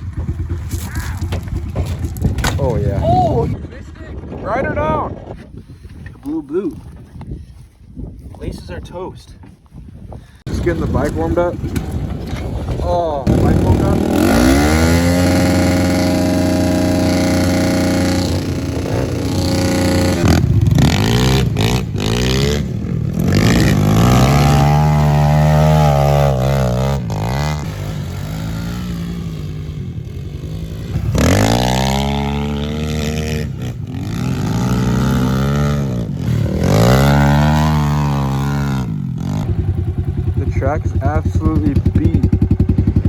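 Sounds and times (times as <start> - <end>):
pit bike engine revving: 10.5 - 43.0.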